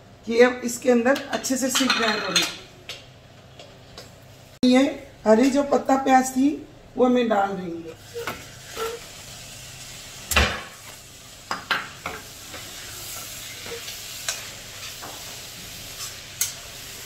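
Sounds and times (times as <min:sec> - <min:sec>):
vegetables sizzling in a pan: 0:07.8 - 0:17.0
metal spatula scraping a pan: 0:08.0 - 0:09.2.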